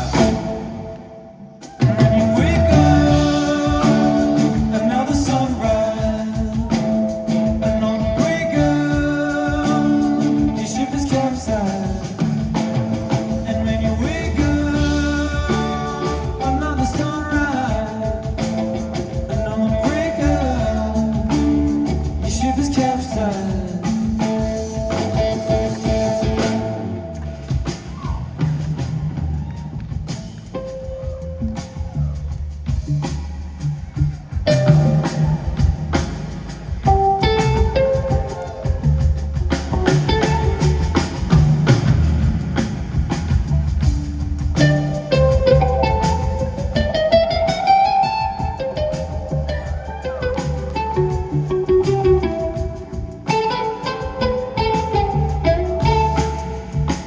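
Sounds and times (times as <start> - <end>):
bass line: 0.0 - 57.0
drum kit strikes: 0.0 - 57.0
live band instrumental: 0.0 - 57.0
plucked string melody: 44.6 - 57.0.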